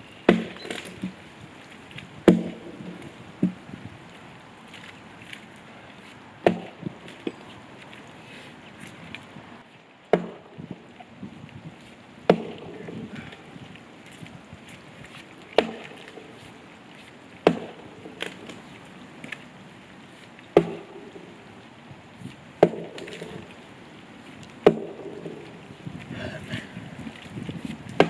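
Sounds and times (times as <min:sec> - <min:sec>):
axe chopping wood: 0:00.3 - 0:01.2, 0:02.2 - 0:03.6, 0:06.4 - 0:07.4, 0:10.1 - 0:10.7, 0:12.3 - 0:13.4, 0:15.5 - 0:16.5, 0:17.4 - 0:18.7, 0:20.6 - 0:21.3, 0:22.6 - 0:23.6, 0:24.6 - 0:25.6.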